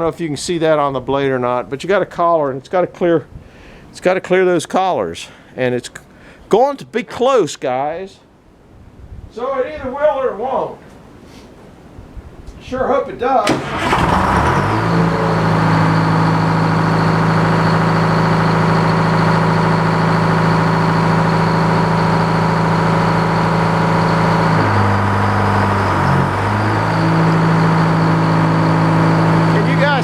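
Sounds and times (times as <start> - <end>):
sawmill engine running: 13.5 - 30.0.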